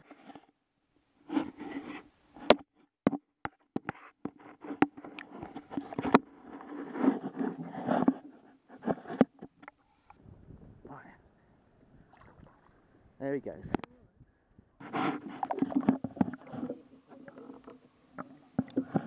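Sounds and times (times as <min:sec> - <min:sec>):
rubbing and scraping: 0:01.2 - 0:02.5, 0:03.8 - 0:09.8, 0:14.8 - 0:19.0.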